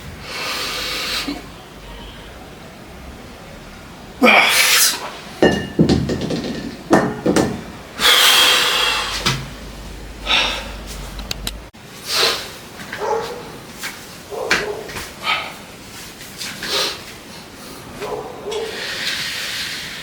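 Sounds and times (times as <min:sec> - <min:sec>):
person breathing hard: 0:00.2 - 0:01.4, 0:08.0 - 0:09.3, 0:10.2 - 0:11.0.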